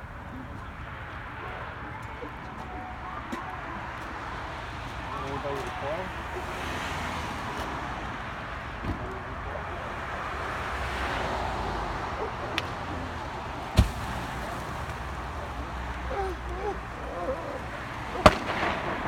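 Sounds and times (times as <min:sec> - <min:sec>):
fire rushing: 0:03.8 - 0:19.0
sharp pops: 0:13.8 - 0:15.1, 0:18.2 - 0:19.0.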